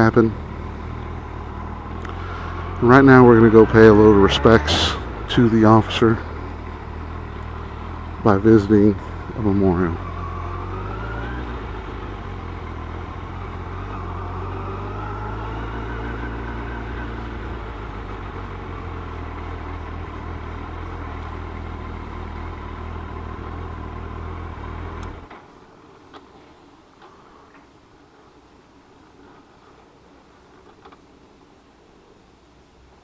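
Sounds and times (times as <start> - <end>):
motorcycle engine running: 0.0 - 25.3.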